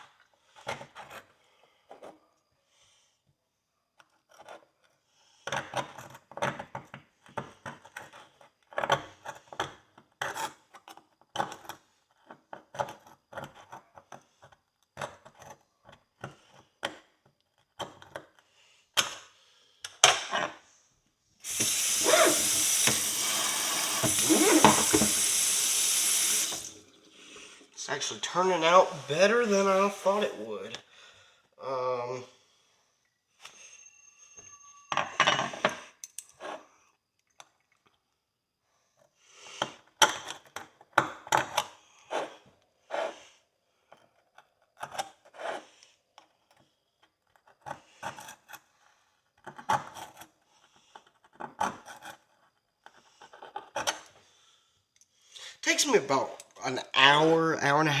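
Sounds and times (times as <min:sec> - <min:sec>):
water running from tap: 0:21.4 - 0:27.8
metal pick scraping horseshoe: 0:21.5 - 0:23.3, 0:23.9 - 0:25.3.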